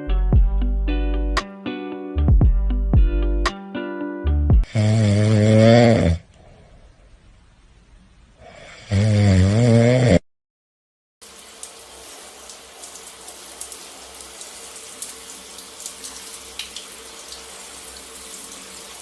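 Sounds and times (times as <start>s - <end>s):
running water: 11.2s - 19.0s.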